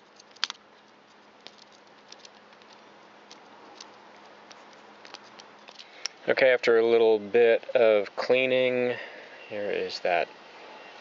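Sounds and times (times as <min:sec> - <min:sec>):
small parts clicking and tapping: 0:00.0 - 0:06.2
faint steady hiss: 0:00.0 - 0:11.0.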